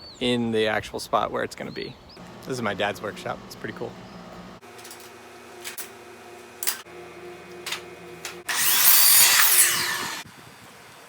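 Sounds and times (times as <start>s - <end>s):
saw cutting: 2.2s - 10.3s.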